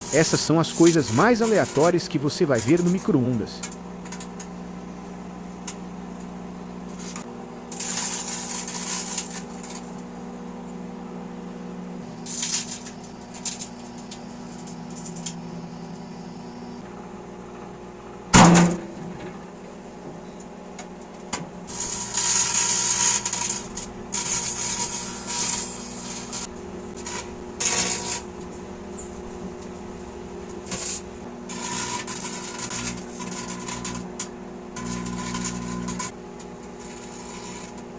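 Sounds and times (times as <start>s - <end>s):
hissing crackle: 0.0s - 3.3s, 6.9s - 10.0s, 12.1s - 16.6s, 21.7s - 36.2s
microwave oven humming: 0.0s - 37.9s
sharp bang: 18.3s - 19.1s.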